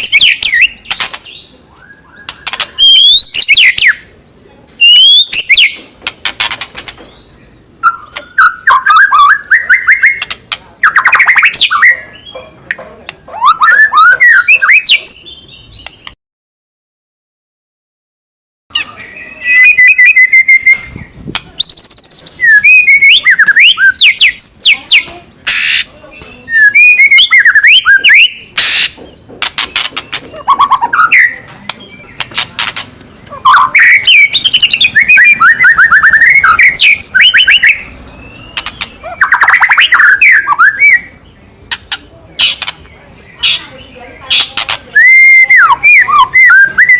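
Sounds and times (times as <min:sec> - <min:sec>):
bird harsh rattling chatter: 0:00.0 - 0:01.4, 0:05.3 - 0:07.1, 0:28.1 - 0:31.2, 0:32.2 - 0:37.7, 0:38.5 - 0:40.2, 0:41.7 - 0:46.9.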